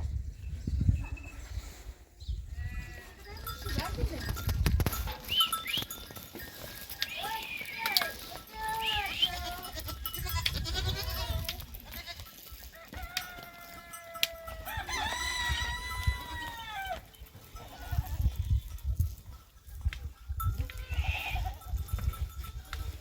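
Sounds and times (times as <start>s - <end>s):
rooster crowing: 12.7s - 17.0s.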